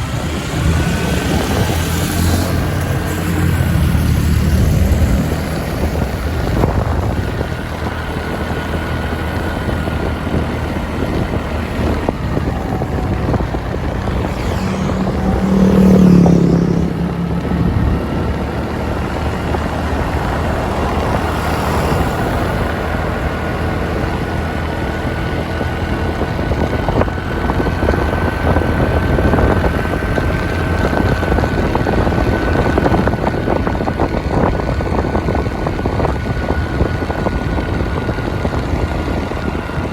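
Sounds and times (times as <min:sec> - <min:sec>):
low engine sound: 0:00.0 - 0:39.9
wind and road noise: 0:00.0 - 0:39.9.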